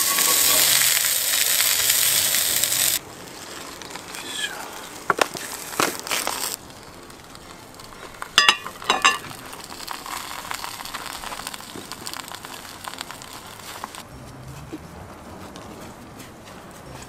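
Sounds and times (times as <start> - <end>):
food sizzling in a pan: 0.0 - 4.6, 5.4 - 14.0.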